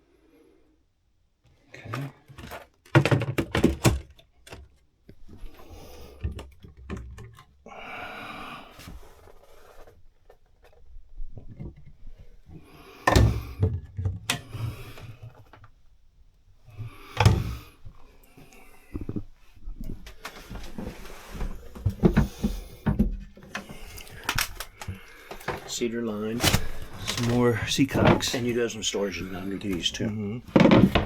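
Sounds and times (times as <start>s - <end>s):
locker lids thunking: 1.9s - 4.8s, 21.4s - 31.0s
scraping and rustling: 8.6s - 15.8s, 16.7s - 31.0s.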